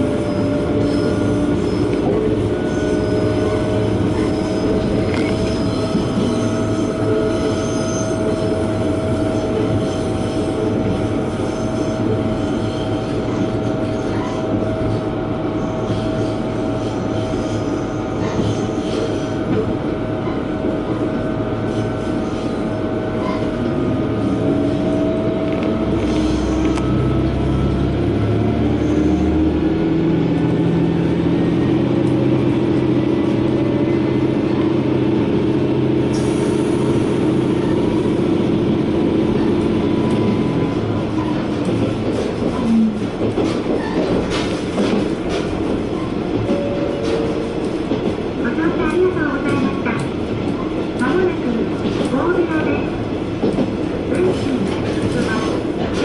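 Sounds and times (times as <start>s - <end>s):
diesel railcar engine: 0.0s - 56.0s.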